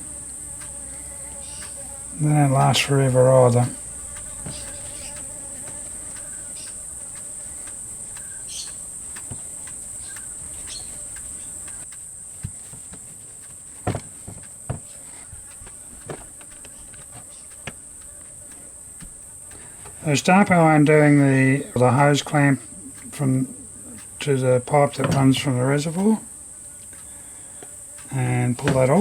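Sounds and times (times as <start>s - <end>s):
high-pitched insect drone: 0.0s - 29.0s
clicks and knocks on workbench: 11.7s - 15.0s, 25.0s - 25.5s.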